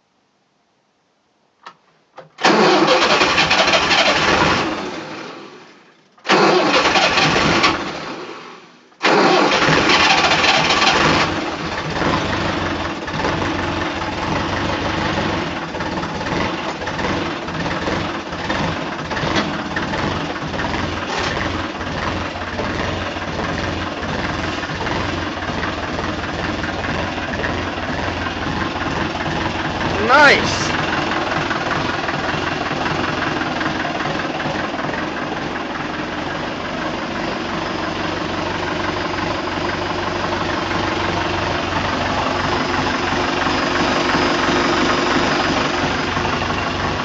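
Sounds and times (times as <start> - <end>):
click: 1.6 - 2.3
tractor engine starting and idling: 1.7 - 47.0.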